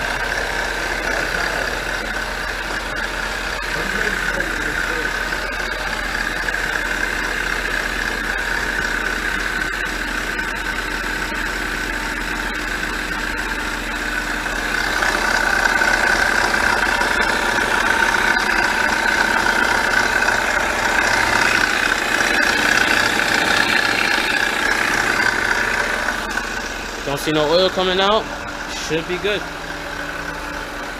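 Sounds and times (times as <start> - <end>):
car engine idling through exhaust: 0.0 - 30.9.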